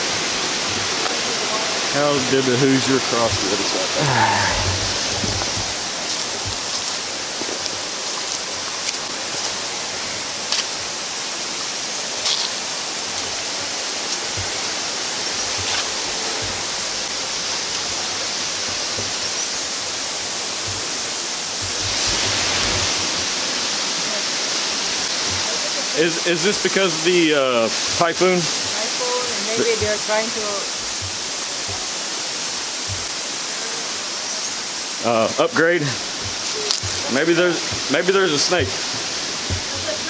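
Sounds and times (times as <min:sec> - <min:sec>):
fast-flowing river water: 0:00.0 - 0:40.0
faint knocks: 0:38.6 - 0:40.0.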